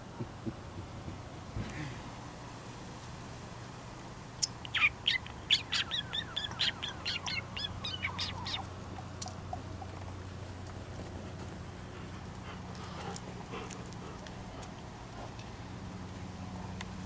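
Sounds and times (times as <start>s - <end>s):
low steady hum: 0.0s - 17.0s
bird singing high chirps: 4.4s - 8.6s.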